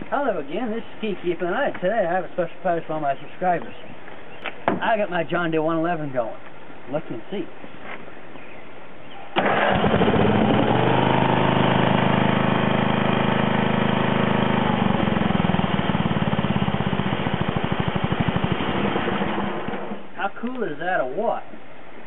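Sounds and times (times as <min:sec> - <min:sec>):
lawn tractor engine running: 0:09.4 - 0:20.1.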